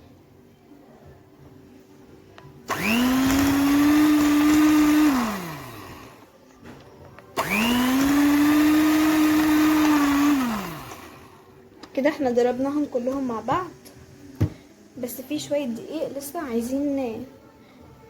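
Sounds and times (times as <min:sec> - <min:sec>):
electric hand mixer whining: 0:02.7 - 0:06.3, 0:07.4 - 0:11.4.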